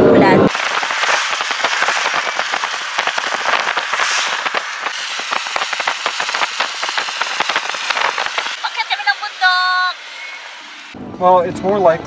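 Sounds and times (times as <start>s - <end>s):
rain pattering: 0.5s - 8.8s.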